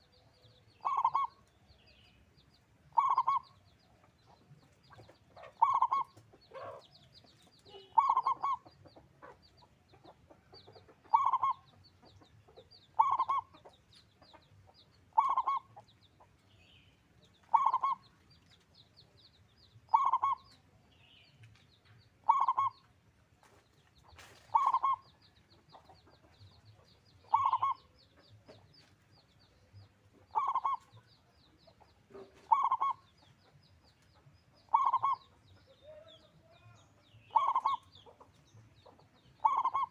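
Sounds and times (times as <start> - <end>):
dove cooing: 0.8 - 1.4, 2.9 - 3.5, 5.4 - 6.8, 7.7 - 8.7, 11.1 - 11.7, 13.0 - 13.6, 15.1 - 15.7, 17.4 - 18.0, 19.9 - 20.5, 22.2 - 22.8, 24.4 - 25.0, 27.3 - 27.9, 30.3 - 30.9, 32.1 - 33.1, 34.7 - 36.1, 37.3 - 37.9, 39.4 - 39.9.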